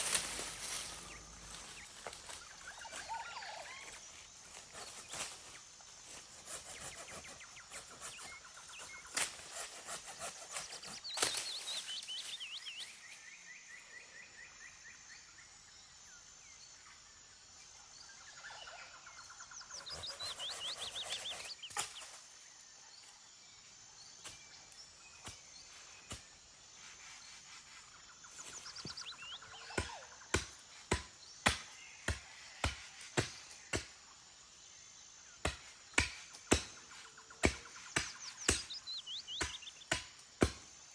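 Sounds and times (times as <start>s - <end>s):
background hiss: 0.0s - 14.3s
birds trilling and chattering: 0.0s - 14.8s, 17.8s - 23.2s, 26.8s - 33.6s, 35.4s - 40.3s.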